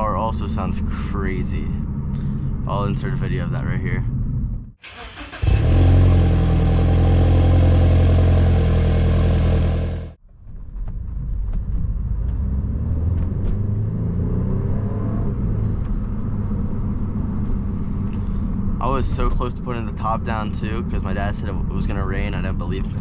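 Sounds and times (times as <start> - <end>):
low rumble of moving car: 4.0 - 23.0
car engine fast idle: 4.8 - 10.2.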